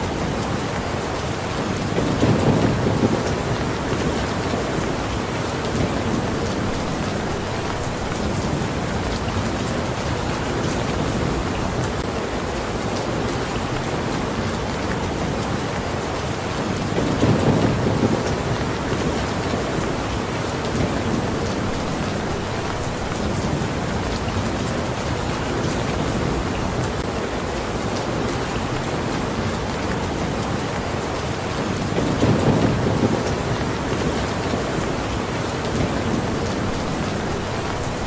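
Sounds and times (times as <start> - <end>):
steady rain falling: 0.0 - 38.0
thunder rumbling: 1.9 - 12.0, 16.9 - 20.0, 31.9 - 38.0.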